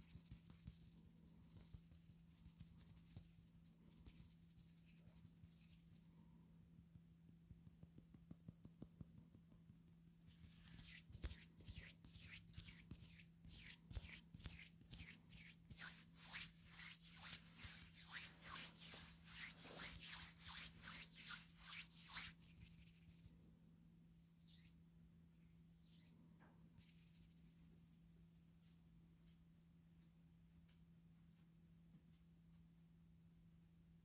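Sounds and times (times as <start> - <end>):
comb scraping paper: 10.3 - 22.4.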